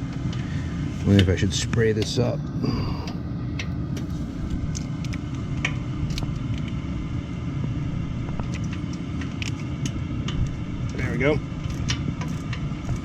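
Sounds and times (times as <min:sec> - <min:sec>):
water heater rumbling: 0:00.0 - 0:13.0.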